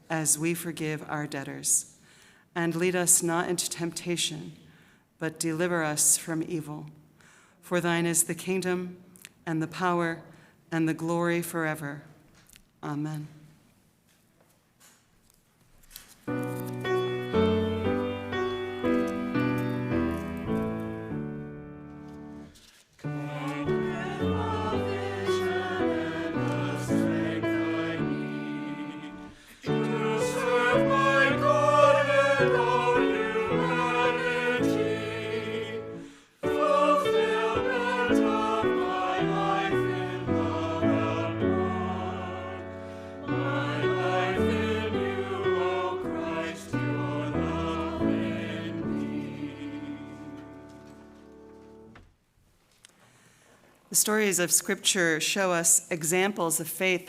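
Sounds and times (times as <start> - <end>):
instrumental accompaniment: 16.2 - 52.1
church choir singing: 16.3 - 51.9.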